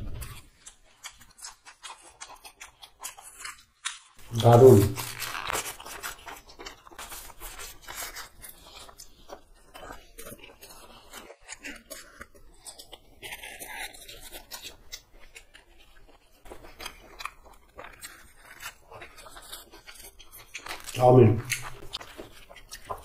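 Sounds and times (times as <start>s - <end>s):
chewing and crunching: 0.0s - 23.0s
paper wrapper rustling: 4.2s - 9.0s, 18.1s - 23.0s.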